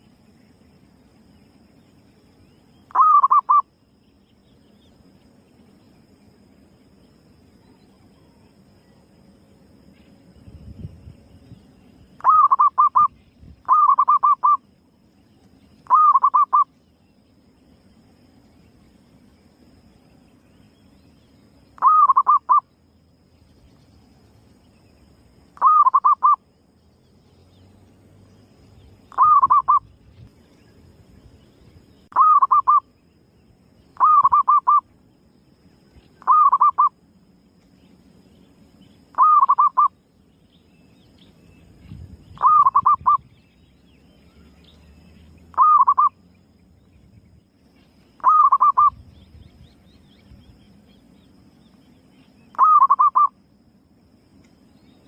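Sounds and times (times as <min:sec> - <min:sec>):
dove cooing: 0:02.9 - 0:03.6, 0:12.2 - 0:13.1, 0:13.7 - 0:14.6, 0:15.9 - 0:16.6, 0:21.8 - 0:22.6, 0:25.6 - 0:26.4, 0:29.1 - 0:29.8, 0:32.1 - 0:32.8, 0:34.0 - 0:34.8, 0:36.2 - 0:36.9, 0:39.2 - 0:39.9, 0:42.4 - 0:43.2, 0:45.5 - 0:46.1, 0:48.2 - 0:49.0, 0:52.5 - 0:53.3.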